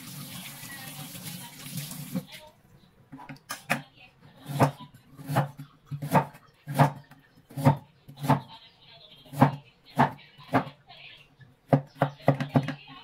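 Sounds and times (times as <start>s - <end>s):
knife chopping on wooden board: 4.4s - 8.4s.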